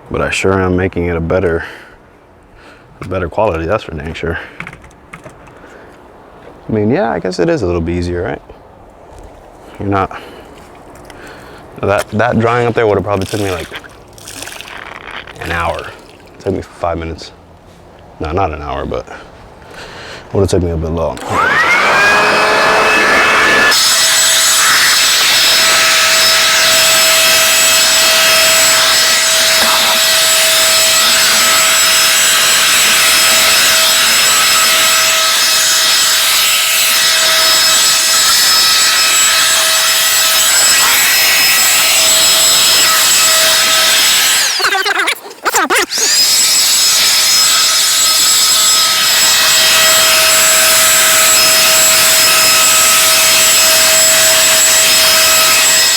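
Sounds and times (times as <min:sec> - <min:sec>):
electric blower whining: 0:21.2 - 0:44.9, 0:45.7 - 0:55.9.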